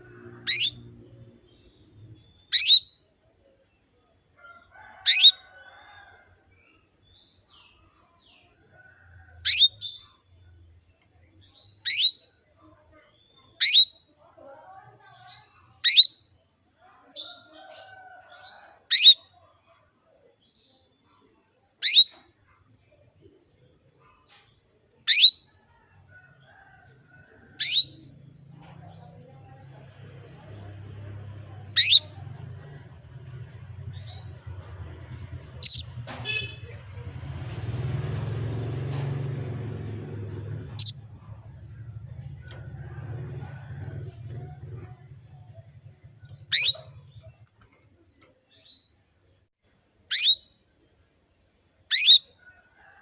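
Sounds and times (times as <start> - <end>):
canary chirping: 0.0 - 3.0, 4.9 - 5.6, 9.4 - 10.2, 11.5 - 12.3, 13.5 - 14.0, 15.1 - 16.3, 18.9 - 19.3, 21.8 - 22.2, 24.5 - 25.5, 27.3 - 37.0, 37.6 - 47.7, 50.0 - 50.5, 51.9 - 52.4.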